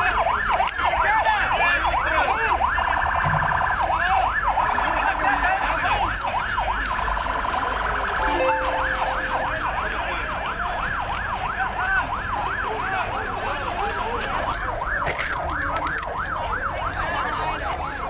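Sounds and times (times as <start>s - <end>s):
emergency siren yelping: 1.8s - 5.2s.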